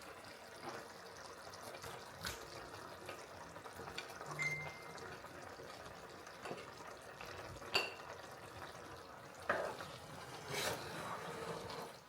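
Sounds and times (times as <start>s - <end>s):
utensil stirring sauce in pan: 6.0s - 12.0s
utensil clinking on pan: 7.7s - 8.1s
knocks and scrapes on pan: 9.5s - 12.0s.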